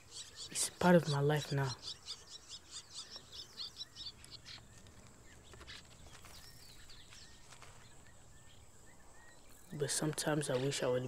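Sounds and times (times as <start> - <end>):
faint outdoor ambience: 0.0 - 11.0
small bird chirping: 0.0 - 11.0.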